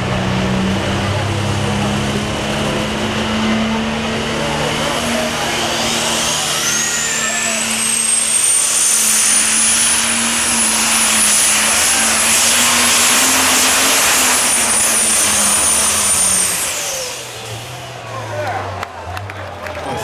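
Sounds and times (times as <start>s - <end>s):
tractor engine at full throttle: 0.0s - 20.0s
turbocharger whistle: 5.2s - 17.6s.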